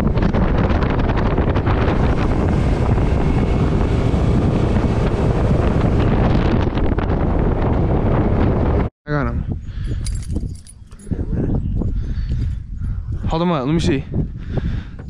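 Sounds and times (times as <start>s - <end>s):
wind buffeting the microphone: 0.0s - 15.0s
outboard motor running: 0.4s - 8.4s
water rushing past hull: 1.0s - 7.1s.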